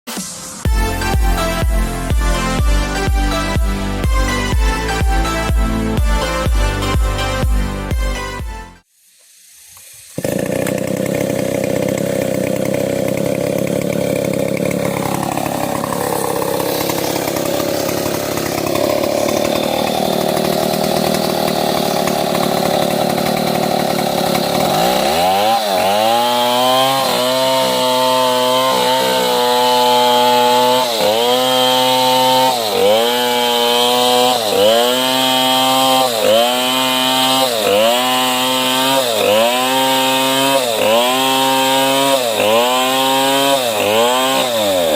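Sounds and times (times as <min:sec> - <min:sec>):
chainsaw cutting log: 0:00.3 - 0:08.9, 0:09.8 - 0:44.9.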